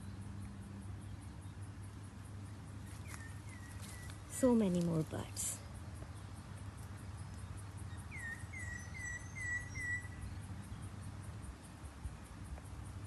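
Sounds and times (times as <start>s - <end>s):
bird chirping: 2.4s - 5.0s, 6.0s - 11.0s.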